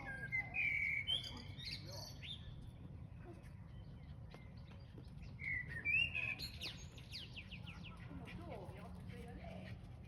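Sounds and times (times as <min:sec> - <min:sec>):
songbird singing whistled phrases: 0:00.0 - 0:02.6, 0:05.2 - 0:07.6
soft bird chirps: 0:00.0 - 0:08.1.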